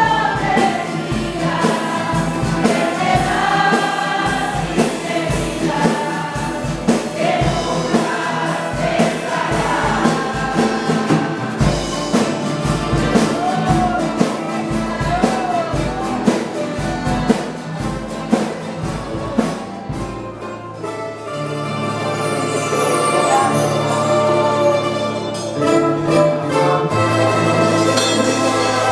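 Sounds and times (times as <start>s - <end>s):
choir singing: 0.0s - 28.9s
instrumental accompaniment with beat: 0.0s - 28.9s.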